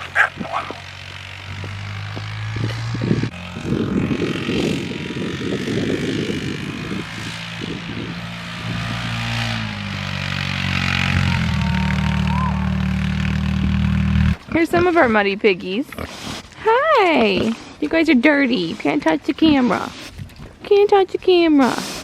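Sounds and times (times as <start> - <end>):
vehicle engine running: 0.0 - 15.1.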